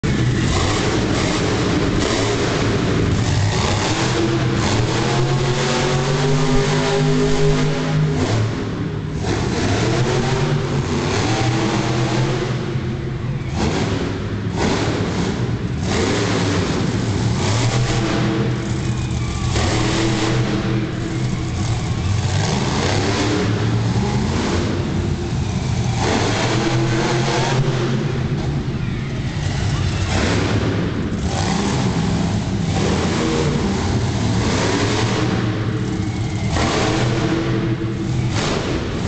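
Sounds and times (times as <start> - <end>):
monster truck engine revving: 0.0 - 39.0.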